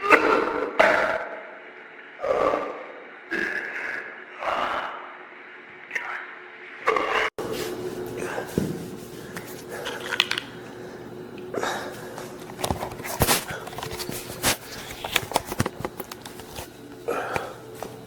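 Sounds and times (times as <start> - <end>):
objects being handled: 12.1 - 18.0.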